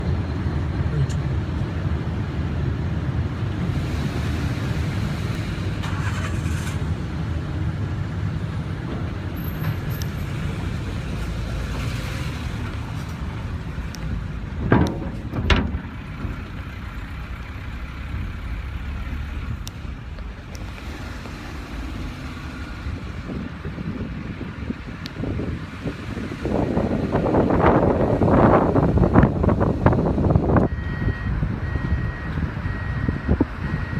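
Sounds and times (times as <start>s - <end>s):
vehicle engine rumble: 0.0s - 33.9s
loud clunks: 14.5s - 16.7s.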